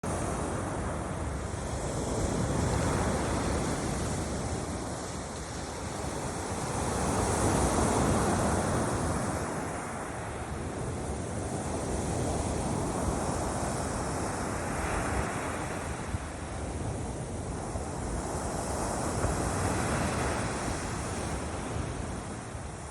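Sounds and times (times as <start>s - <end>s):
waves washing onto beach: 0.1s - 22.9s
wind rumbling on microphone: 0.1s - 22.9s.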